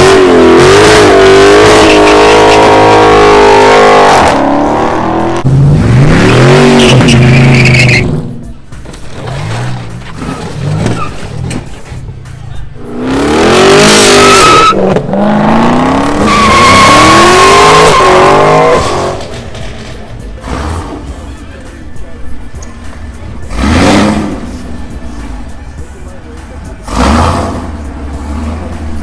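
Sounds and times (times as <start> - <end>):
car engine revving hard: 0.0 - 8.2, 12.8 - 19.3, 20.4 - 21.2, 23.4 - 24.6, 26.8 - 29.0
tyres squealing: 0.0 - 29.0.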